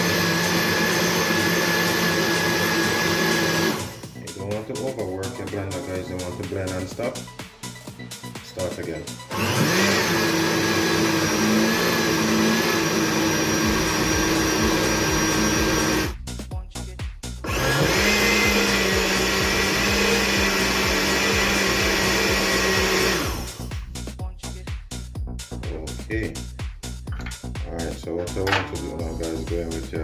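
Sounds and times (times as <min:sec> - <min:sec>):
blender motor running: 0:00.0 - 0:04.2, 0:09.3 - 0:16.2, 0:17.4 - 0:23.9.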